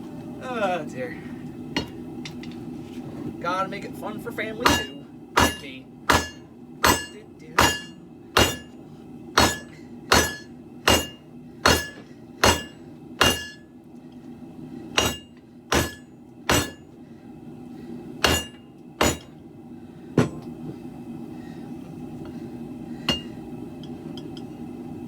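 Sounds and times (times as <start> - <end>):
hammer ringing on anvil: 4.6 - 8.8, 9.4 - 13.6, 15.0 - 16.8, 18.2 - 19.3, 23.1 - 23.3.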